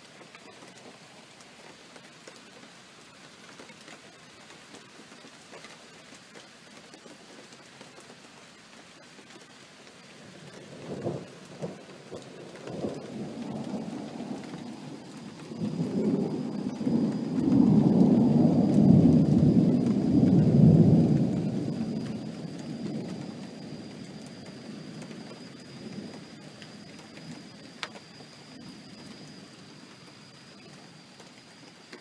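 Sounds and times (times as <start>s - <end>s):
steady rain: 0.0s - 32.0s
thunder cracks and rumble: 10.2s - 29.7s.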